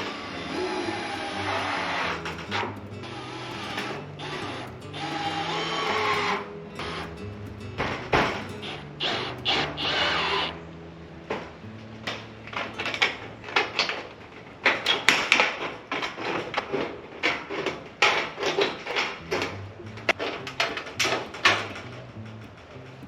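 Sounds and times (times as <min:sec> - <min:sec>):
quiet background music with bass: 0:00.0 - 0:14.0, 0:19.1 - 0:23.0
knocks and clatters on wood and metal: 0:00.6 - 0:10.0, 0:14.7 - 0:23.0.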